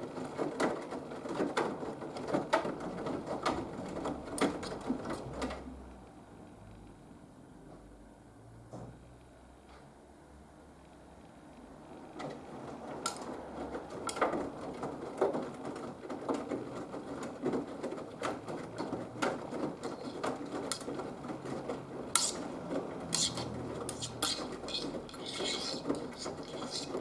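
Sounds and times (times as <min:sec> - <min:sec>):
clicks and knocks against drum: 0:16.2 - 0:27.0.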